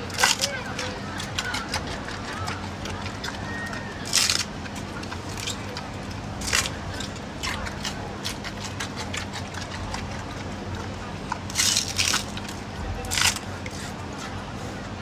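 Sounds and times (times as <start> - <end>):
bamboo stalks cracking: 0.0 - 0.5, 4.0 - 5.8, 6.4 - 10.0, 11.4 - 13.4
panda chewing bamboo: 0.0 - 15.0
steady low hum: 0.0 - 15.0.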